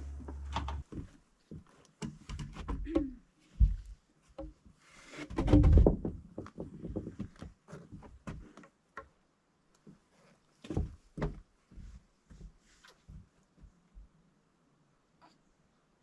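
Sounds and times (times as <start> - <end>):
low rumbling: 0.0 - 0.9
timber beams knocking and thumping: 5.3 - 7.3.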